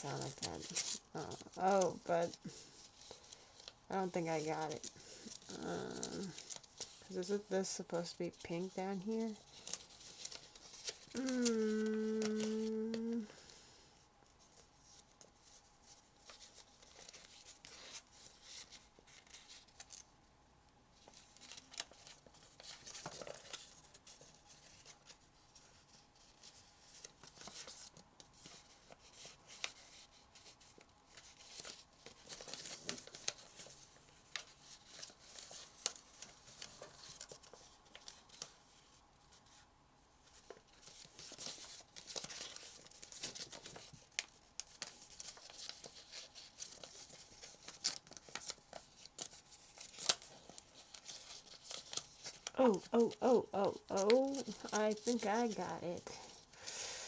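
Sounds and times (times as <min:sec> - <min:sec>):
paper creases crackling: 0:00.0 - 0:13.5, 0:21.0 - 0:39.6, 0:40.2 - 0:56.8
paper crinkling and rustling: 0:00.0 - 0:13.5, 0:14.2 - 0:20.1, 0:20.9 - 0:56.7.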